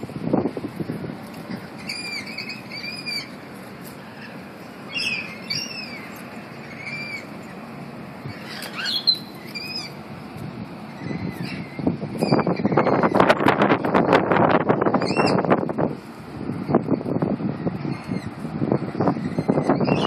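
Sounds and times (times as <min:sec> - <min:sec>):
steady background hiss: 0:00.0 - 0:12.4
birds whistling calls: 0:01.4 - 0:10.1, 0:10.8 - 0:13.9, 0:14.8 - 0:15.6, 0:17.5 - 0:20.0.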